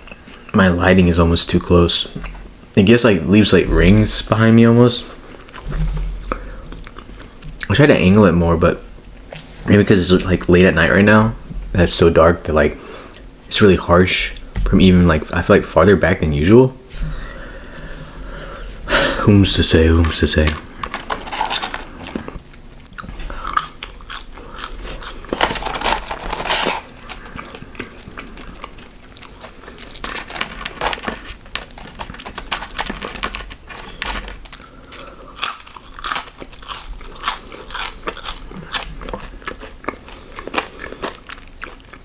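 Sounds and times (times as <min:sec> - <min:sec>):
person chewing crunchy food: 0:00.0 - 0:00.6, 0:05.0 - 0:07.7, 0:20.6 - 0:42.0.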